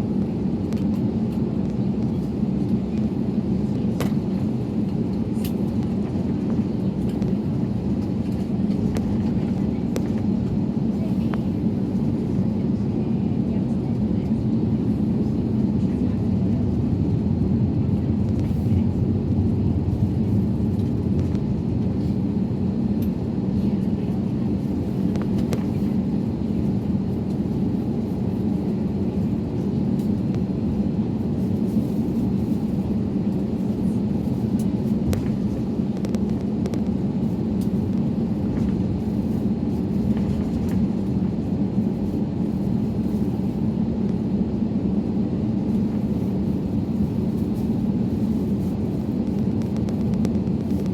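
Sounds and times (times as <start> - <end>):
airliner low rumble: 0.0 - 50.9.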